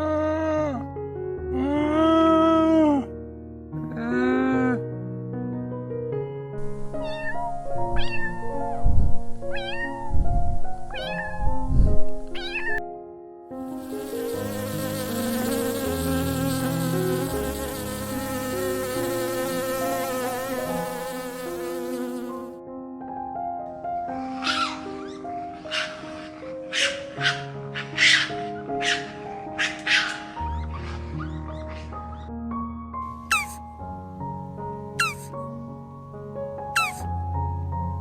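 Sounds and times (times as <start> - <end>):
background music: 0.0 - 10.1, 10.8 - 38.0
insect-like buzz: 13.6 - 22.6, 33.3 - 33.6, 35.0 - 35.4, 36.8 - 37.0
animal calls rising and falling: 24.4 - 32.1, 33.3 - 33.6, 35.0 - 35.3, 36.8 - 37.0.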